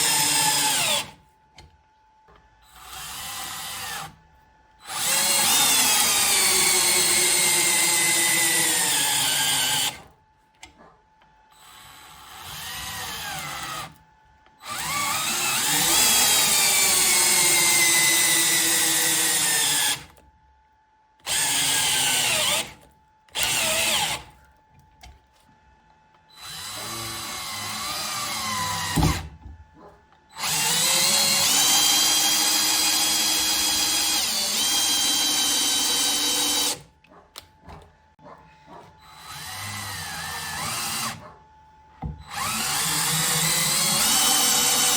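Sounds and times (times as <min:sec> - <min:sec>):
impact driver motor whining: 0:00.0 - 0:01.2, 0:14.6 - 0:20.2, 0:21.2 - 0:24.4, 0:26.3 - 0:29.4, 0:30.3 - 0:36.9, 0:39.0 - 0:41.2, 0:42.0 - 0:44.9.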